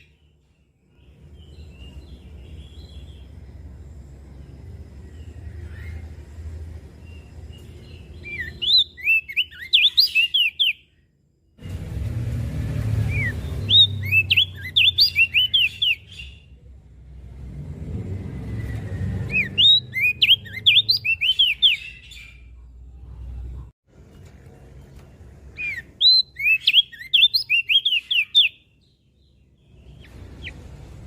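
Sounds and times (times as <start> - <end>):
bird singing high whistled notes: 5.0 - 11.0, 13.0 - 16.6, 18.5 - 22.4, 25.6 - 30.6.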